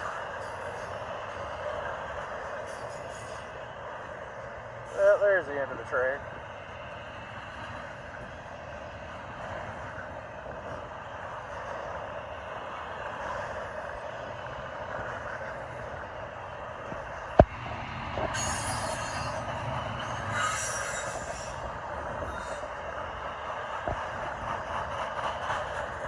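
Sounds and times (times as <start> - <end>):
freight train rolling over rails: 0.0 - 26.0
high wheel squeals: 2.6 - 3.6, 18.3 - 22.8.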